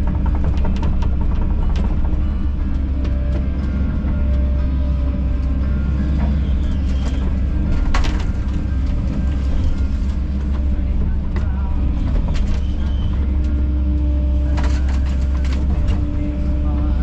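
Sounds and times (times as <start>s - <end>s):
excavator diesel engine droning: 0.0s - 17.0s
machine knocks and clanks: 0.0s - 17.0s.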